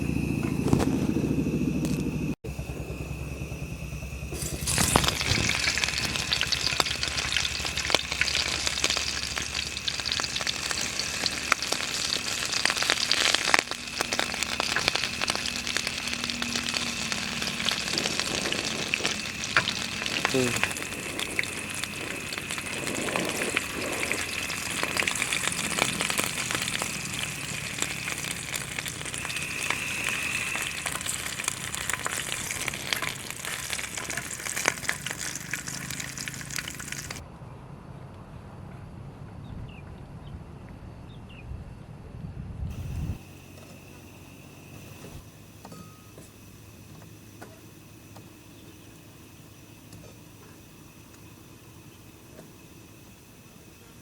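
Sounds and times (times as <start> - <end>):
food sizzling in a pan: 4.4 - 37.2
stirring sounds: 4.4 - 37.2.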